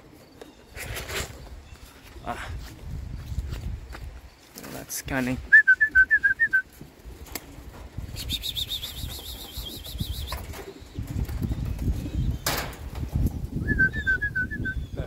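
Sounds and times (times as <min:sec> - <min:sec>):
pigeon wings flapping: 0:06.4 - 0:13.5.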